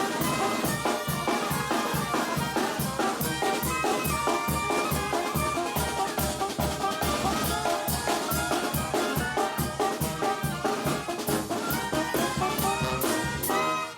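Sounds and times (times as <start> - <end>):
steady drum beat: 0.0 - 13.8
brass melody: 0.0 - 13.9.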